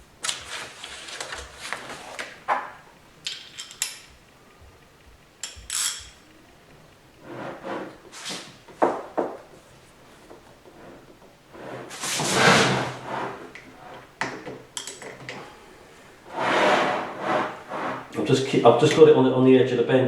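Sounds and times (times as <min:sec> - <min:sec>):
sharp clicks of metal parts: 0:03.2 - 0:04.3, 0:05.4 - 0:06.2, 0:14.2 - 0:15.5
parts sliding and scraping: 0:07.2 - 0:08.9, 0:09.5 - 0:14.2, 0:15.0 - 0:19.0.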